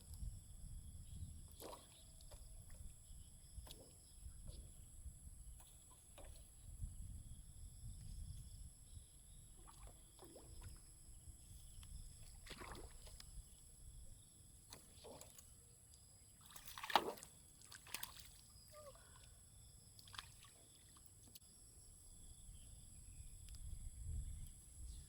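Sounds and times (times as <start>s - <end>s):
water sloshing and splashing: 1.4s - 4.3s, 9.4s - 13.7s, 14.4s - 15.6s, 16.3s - 19.2s, 20.0s - 21.4s.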